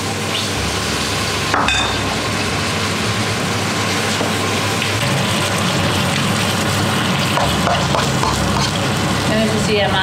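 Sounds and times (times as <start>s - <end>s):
food sizzling in a wok: 0.0s - 10.0s
spatula stirring in a wok: 5.2s - 9.0s.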